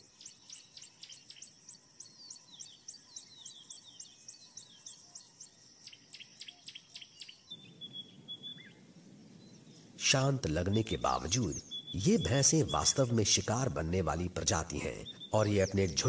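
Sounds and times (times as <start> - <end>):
rapid high bird chirps: 0.0 - 8.8, 9.4 - 16.0.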